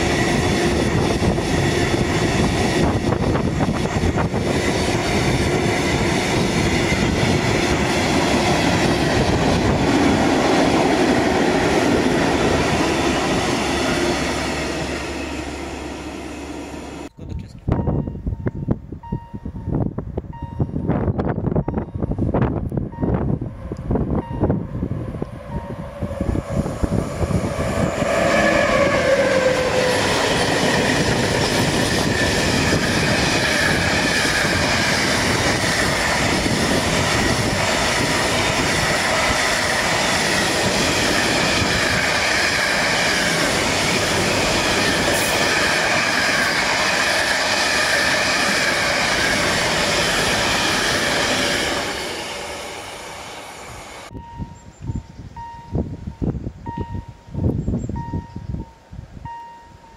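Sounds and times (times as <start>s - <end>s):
freight train passing: 0.0s - 59.9s
wheels on rails: 20.3s - 55.8s.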